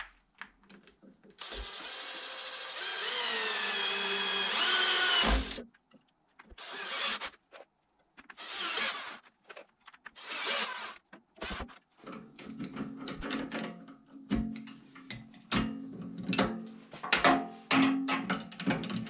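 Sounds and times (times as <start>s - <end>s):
cordless drill driving screws: 1.4s - 5.6s, 6.6s - 7.4s, 8.4s - 9.3s, 10.2s - 11.8s.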